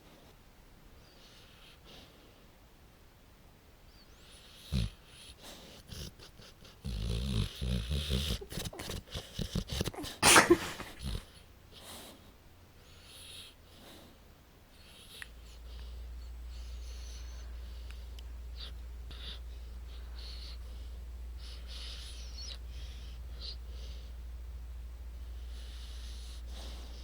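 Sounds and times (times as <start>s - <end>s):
puppy snoring: 4.1s - 11.9s, 12.9s - 14.1s, 25.2s - 27.0s.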